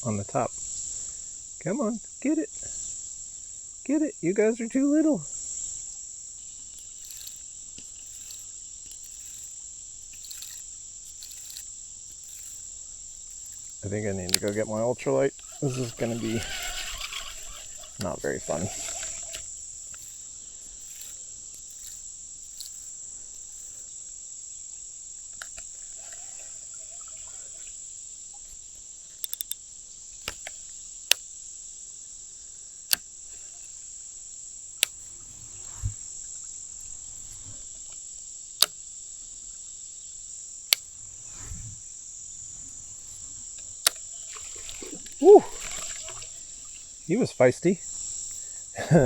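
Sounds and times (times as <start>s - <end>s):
insects chirring: 0.0s - 49.0s
sharp clicks: 6.6s - 23.8s, 28.4s - 29.6s, 30.2s - 31.3s, 38.6s - 38.9s, 42.6s - 46.4s.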